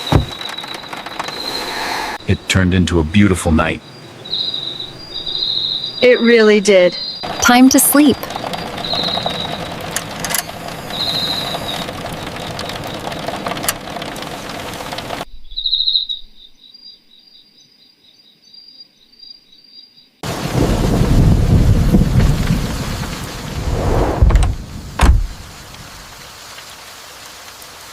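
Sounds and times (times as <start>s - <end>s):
heavy rain: 0.0s - 15.2s, 20.2s - 27.9s
steady rain: 0.0s - 15.3s, 20.2s - 27.9s
crickets trilling: 0.0s - 20.2s
deep rumble: 7.0s - 16.4s, 20.5s - 26.2s.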